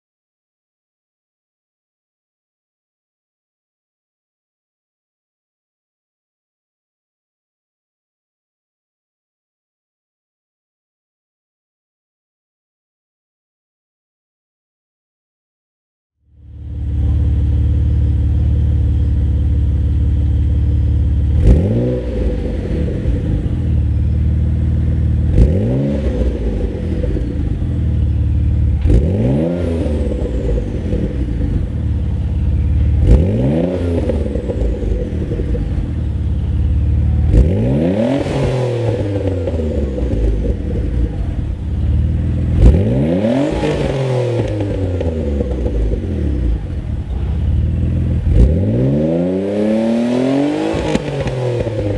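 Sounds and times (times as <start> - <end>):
car engine idling and revving: 16.2 - 51.9.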